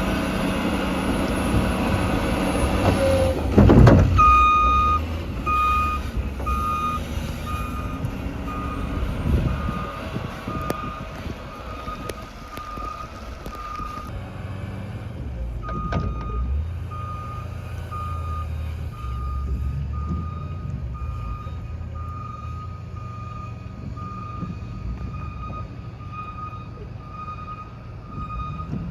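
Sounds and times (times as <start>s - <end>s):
low engine rumble: 0.0s - 28.9s
backup alarm beeping: 4.2s - 14.1s.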